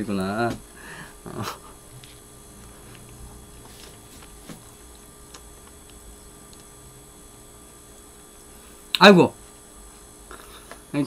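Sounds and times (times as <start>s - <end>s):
faint electrical hum: 0.0s - 11.0s
man chewing: 1.6s - 6.7s.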